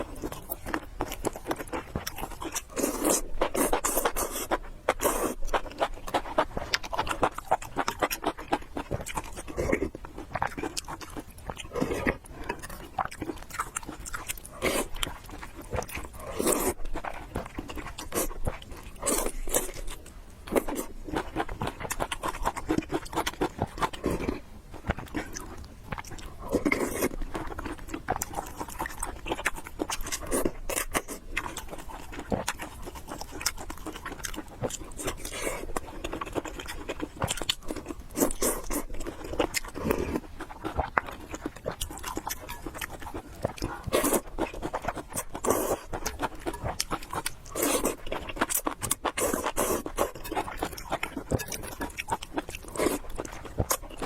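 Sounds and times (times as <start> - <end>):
wet chewing mouth clicks: 20.5 - 54.0.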